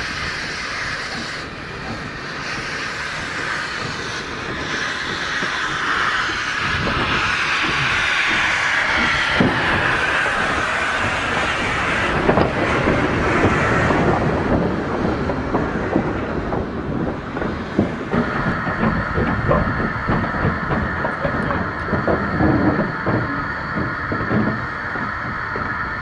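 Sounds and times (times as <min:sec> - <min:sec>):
train wheels clicking on rails: 0:00.0 - 0:26.0.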